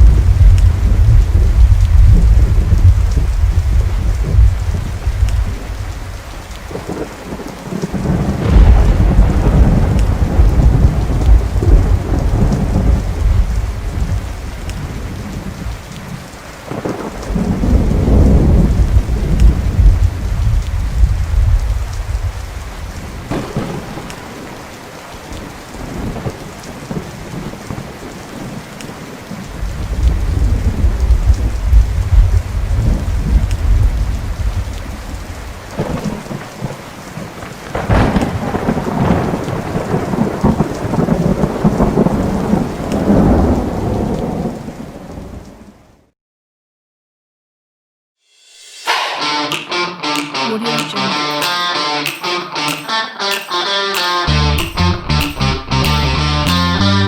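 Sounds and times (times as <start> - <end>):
thunder crack: 0.0 - 15.8, 16.7 - 24.6, 35.7 - 36.8, 37.4 - 44.8
rolling thunder: 0.0 - 24.6, 25.8 - 45.7
steady rain: 0.0 - 46.1.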